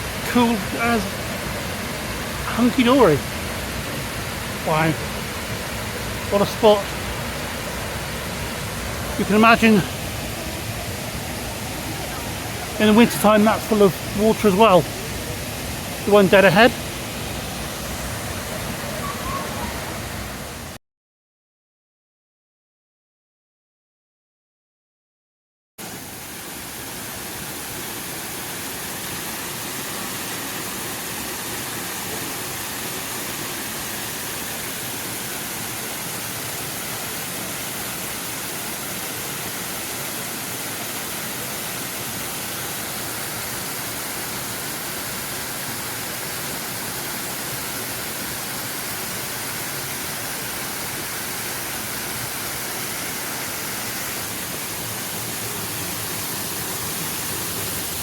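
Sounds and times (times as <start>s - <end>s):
waterfall rushing: 0.0s - 20.8s, 25.8s - 58.0s.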